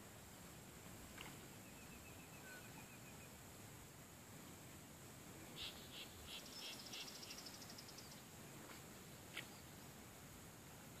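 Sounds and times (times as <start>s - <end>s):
faint high hiss: 0.0s - 11.0s
bird trill: 5.6s - 8.2s.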